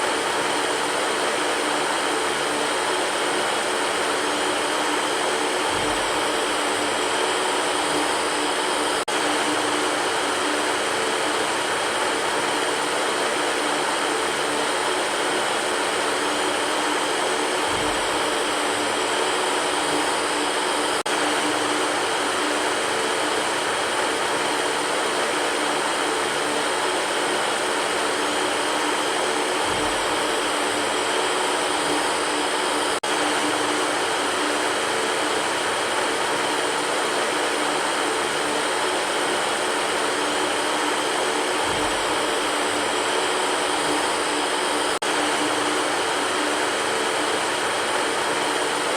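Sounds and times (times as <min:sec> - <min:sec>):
electric fan running: 0:00.0 - 0:48.9.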